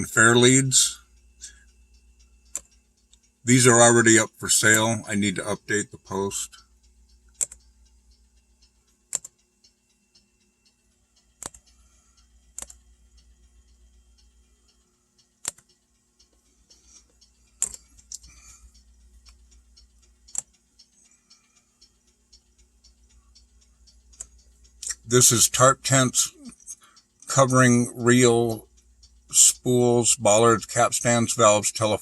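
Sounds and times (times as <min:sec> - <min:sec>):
low electrical hum: 0:00.0 - 0:32.0
computer mouse clicking: 0:07.3 - 0:07.7, 0:09.1 - 0:09.4, 0:11.4 - 0:11.7, 0:12.5 - 0:12.8, 0:15.4 - 0:15.8, 0:16.7 - 0:18.4, 0:20.2 - 0:21.0.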